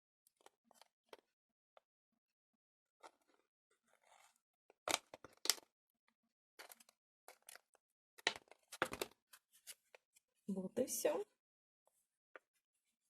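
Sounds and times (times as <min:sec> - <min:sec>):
plastic tray crinkling and clicking: 0:04.9 - 0:05.7, 0:06.6 - 0:09.2.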